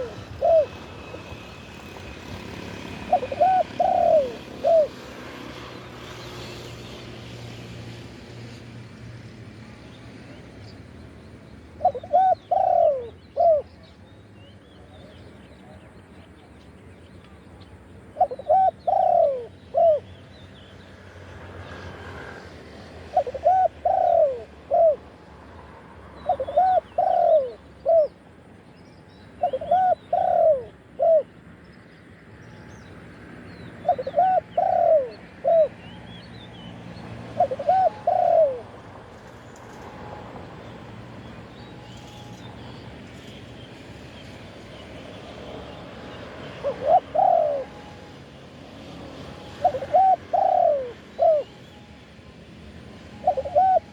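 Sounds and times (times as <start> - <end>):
dove cooing: 0.0 - 6.7, 11.7 - 13.8, 18.2 - 20.1, 22.9 - 25.1, 26.2 - 28.2, 29.4 - 31.4, 33.6 - 36.0, 37.0 - 38.9, 44.7 - 48.2, 49.0 - 52.0, 52.8 - 53.9.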